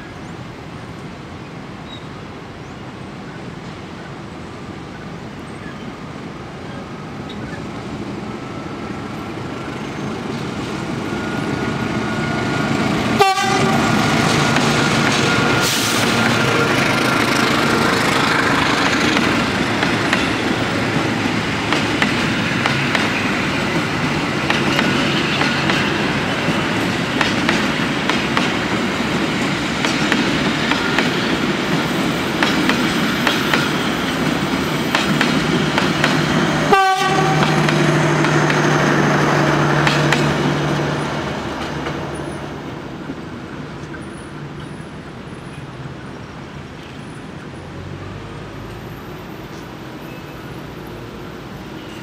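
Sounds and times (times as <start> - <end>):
train wheels rumbling on rails: 6.6 - 52.0
clickety-clack of rail joints: 9.4 - 46.1, 48.6 - 50.2.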